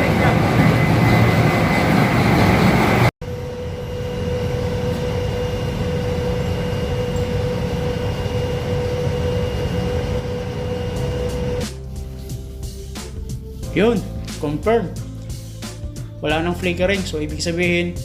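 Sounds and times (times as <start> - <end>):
constant machinery tone: 0.0 - 12.6
ship engine rumbling: 0.0 - 14.2.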